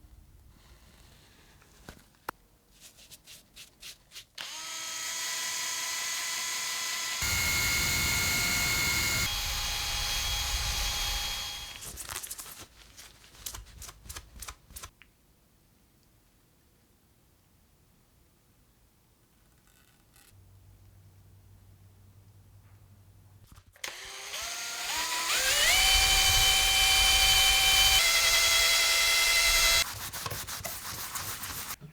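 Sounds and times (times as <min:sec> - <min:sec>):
hand-held power drill running: 0:04.4 - 0:11.9, 0:23.8 - 0:29.9.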